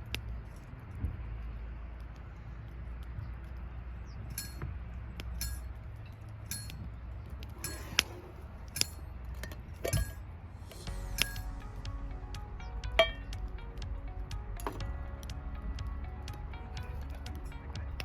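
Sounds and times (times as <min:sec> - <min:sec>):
low steady rumble: 0:00.0 - 0:18.0
utensil clinking on metal cookware: 0:04.3 - 0:04.7, 0:05.4 - 0:05.7, 0:06.5 - 0:06.8, 0:07.6 - 0:08.2.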